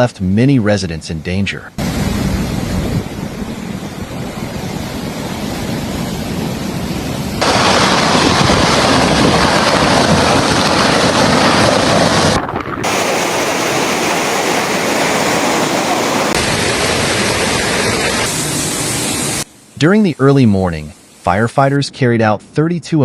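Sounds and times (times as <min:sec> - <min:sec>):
wind on microphone: 0:01.8 - 0:18.3
rushing water: 0:01.8 - 0:20.3.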